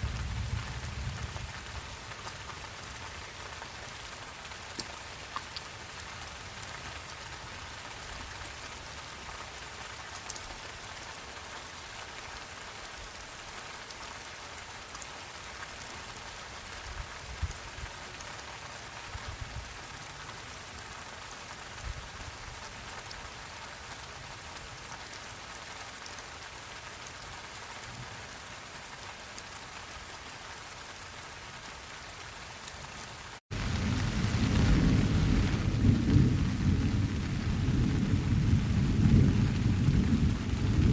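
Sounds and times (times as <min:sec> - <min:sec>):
rain falling: 0:00.0 - 0:40.9
water drips: 0:04.6 - 0:06.7.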